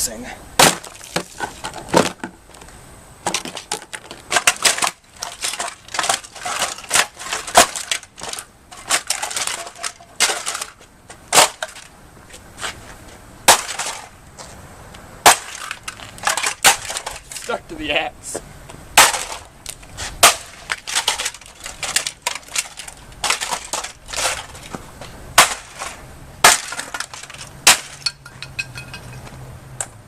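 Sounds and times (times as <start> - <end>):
axe striking plastic: 0.6 - 2.2, 3.3 - 10.7, 11.3 - 11.8, 13.5 - 14.1, 15.2 - 17.2, 19.0 - 24.5, 25.4 - 28.0.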